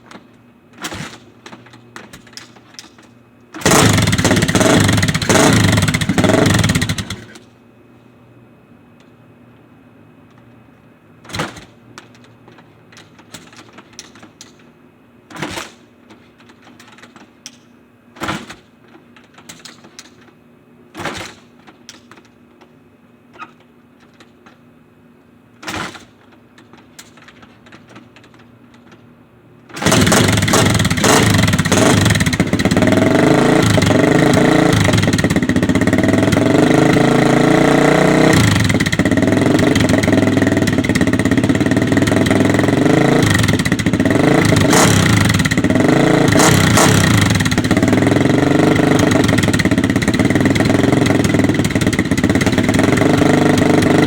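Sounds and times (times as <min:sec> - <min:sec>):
motorcycle kick-start kicks: 0:00.0 - 0:07.5, 0:11.2 - 0:22.7, 0:23.3 - 0:24.6, 0:25.6 - 0:29.1, 0:29.7 - 0:54.0
motorcycle engine revving: 0:03.6 - 0:07.4, 0:29.8 - 0:54.0.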